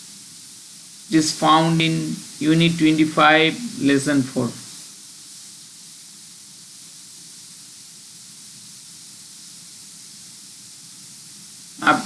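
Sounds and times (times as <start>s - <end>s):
faint low hum: 0.0s - 12.0s
steady background hiss: 0.0s - 12.0s.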